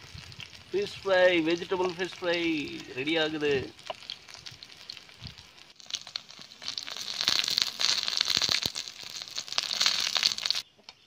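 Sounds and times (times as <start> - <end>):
banana slices sizzling in oil: 0.0 - 10.6.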